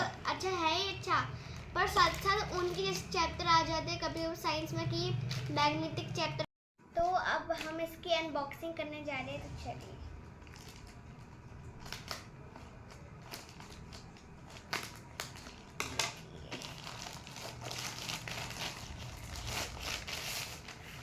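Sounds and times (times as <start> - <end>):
packaging crinkling and rustling: 9.7 - 21.0.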